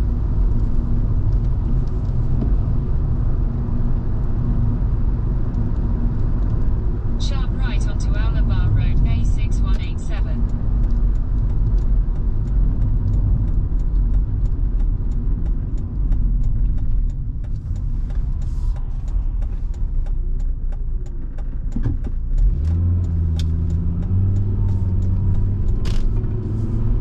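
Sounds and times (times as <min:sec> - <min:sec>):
car engine: 0:00.0 - 0:27.0
light ticking: 0:05.4 - 0:27.0.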